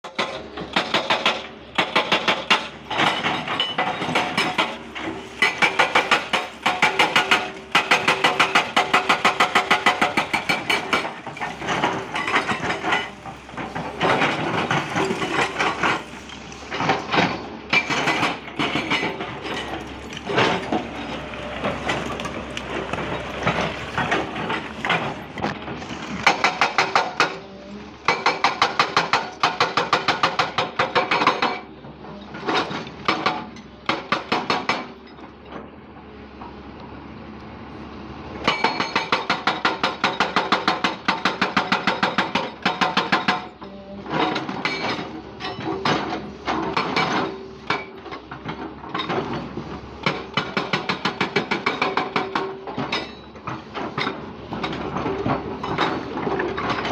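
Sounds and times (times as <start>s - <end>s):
diesel engine running: 2.8s - 25.9s.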